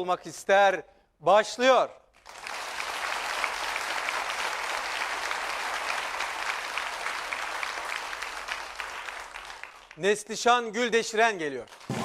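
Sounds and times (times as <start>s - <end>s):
audience applauding: 2.2s - 10.0s, 11.7s - 12.0s.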